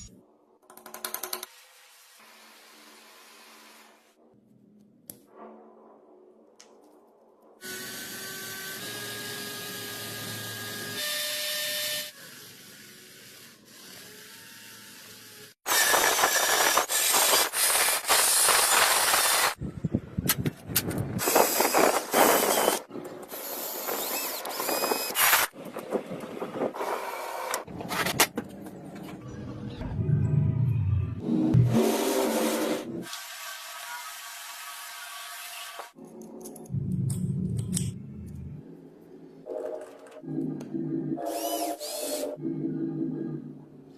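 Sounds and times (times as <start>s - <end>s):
small power tool whirring: 7.6s - 19.6s, 21.2s - 25.5s, 41.2s - 42.4s.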